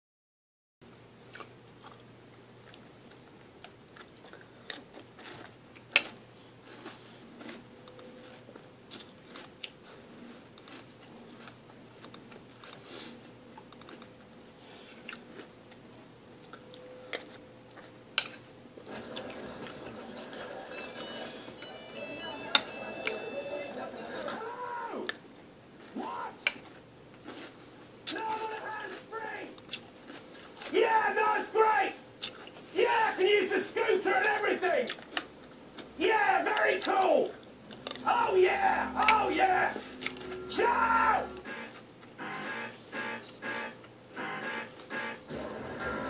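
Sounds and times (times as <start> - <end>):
chewing and crunching cereal: 0.9 - 19.8, 25.8 - 31.0, 32.0 - 32.7, 34.2 - 36.0
louder background sound: 37.0 - 46.0
low steady hum: 37.2 - 46.0.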